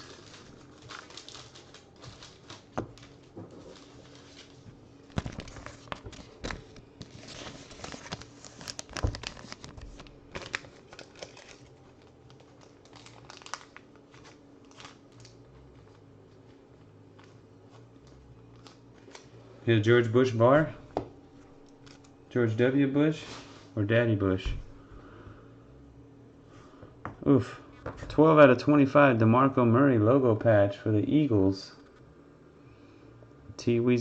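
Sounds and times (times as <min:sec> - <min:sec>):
plastic packaging crinkling: 0:00.0 - 0:16.0, 0:18.0 - 0:19.4, 0:21.5 - 0:22.2
faint steady hum: 0:00.0 - 0:34.0.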